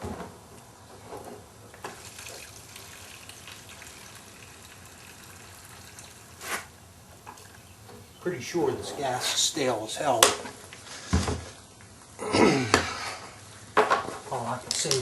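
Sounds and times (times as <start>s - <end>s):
gasoline trickling into tank: 1.8s - 7.9s.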